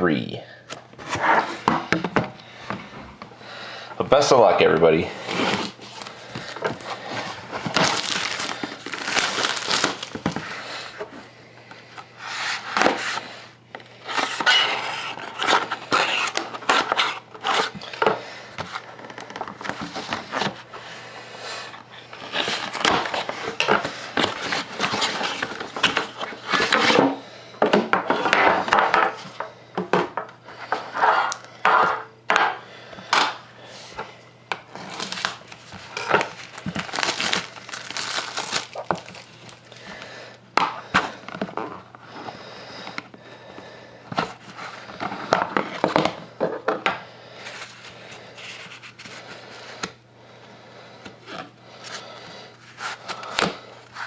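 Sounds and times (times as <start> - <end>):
faint electrical hum: 0.0 - 54.0
wrapping crinkling: 4.6 - 11.0, 34.7 - 40.0.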